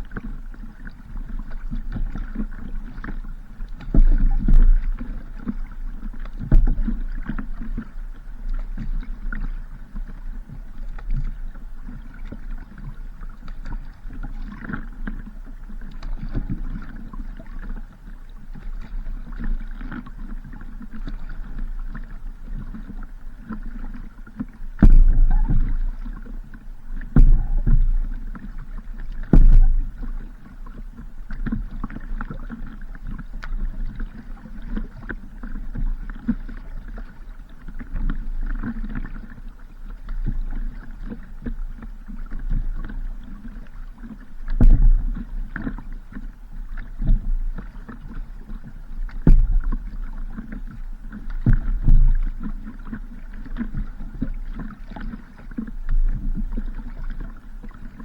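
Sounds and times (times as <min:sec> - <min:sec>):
wind rumbling on microphone: 0:00.0 - 0:39.2, 0:40.2 - 0:58.0
water noise: 0:00.0 - 0:58.0
heavy thumps: 0:24.8 - 0:25.8, 0:27.1 - 0:28.1, 0:29.4 - 0:29.9.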